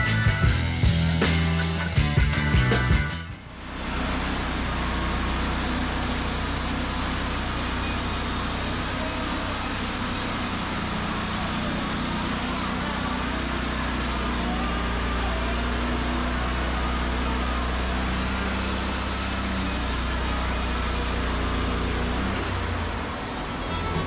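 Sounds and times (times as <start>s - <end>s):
sawmill engine humming: 0.0s - 24.0s.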